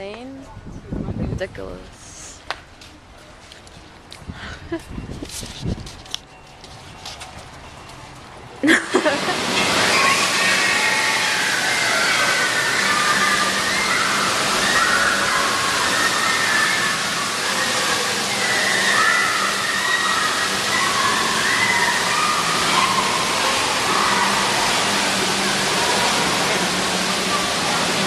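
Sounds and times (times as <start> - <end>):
water splashing from fountains: 8.6 - 28.0
distant voices shouting: 9.4 - 28.0.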